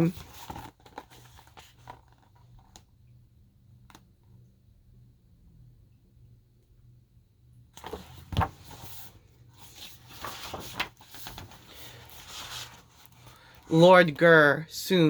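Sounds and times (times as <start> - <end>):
book page turning: 0.0 - 2.9, 7.8 - 14.2.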